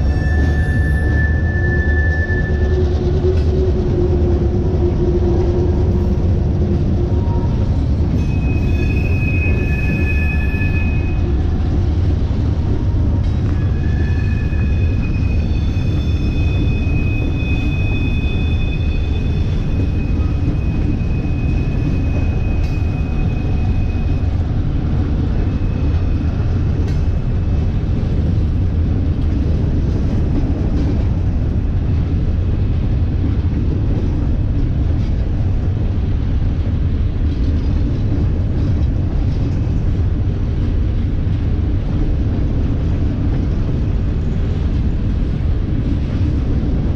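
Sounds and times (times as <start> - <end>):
high-pitched wheel squeals: 0.0 - 4.1, 7.1 - 11.5, 12.8 - 24.4
train wheels rumbling on rail: 0.0 - 46.9.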